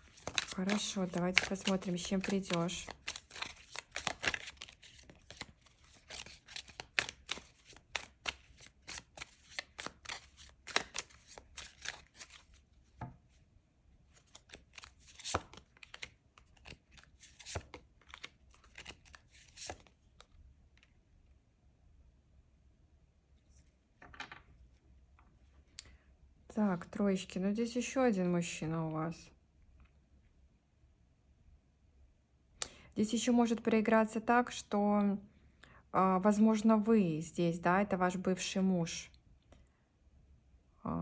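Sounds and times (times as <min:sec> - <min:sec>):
cards being shuffled: 0:00.0 - 0:12.6, 0:14.2 - 0:20.0.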